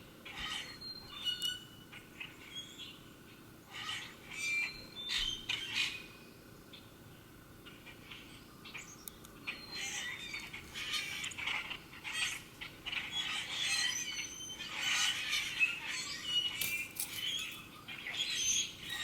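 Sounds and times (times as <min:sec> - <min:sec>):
birds chirping and calling: 0:00.0 - 0:19.0.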